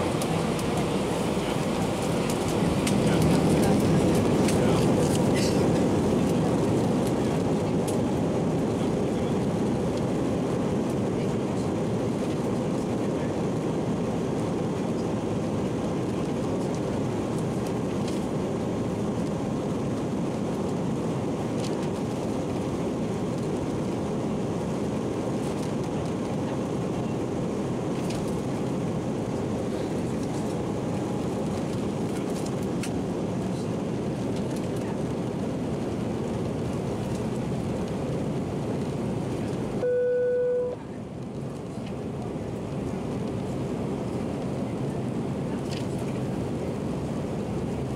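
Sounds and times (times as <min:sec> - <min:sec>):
airplane cabin noise: 0:00.0 - 0:47.9.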